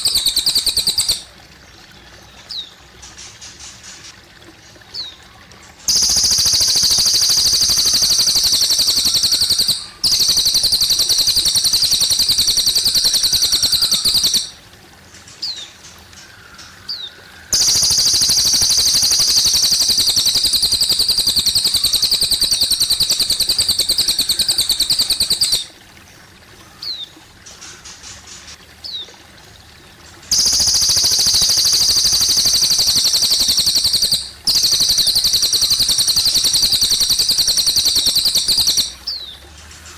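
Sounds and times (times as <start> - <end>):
bird chirps: 0.0 - 1.3, 5.9 - 14.6, 16.9 - 25.8, 30.3 - 39.4
bird trilling: 0.0 - 1.3, 5.9 - 14.6, 16.9 - 25.8, 30.3 - 39.3
running water trickling: 0.0 - 39.9.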